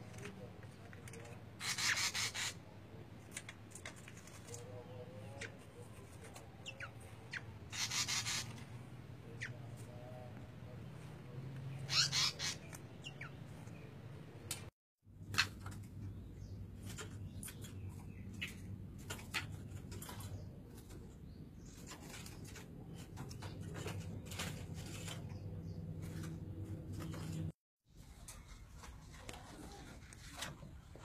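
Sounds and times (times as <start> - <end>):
caged birds chirping: 0.0 - 31.0.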